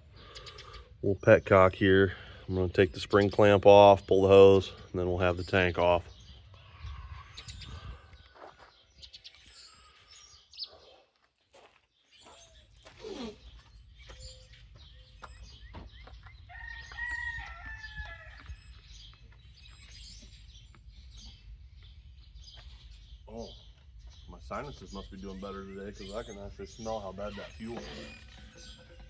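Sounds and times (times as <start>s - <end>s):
rooster crowing: 16.5s - 18.6s.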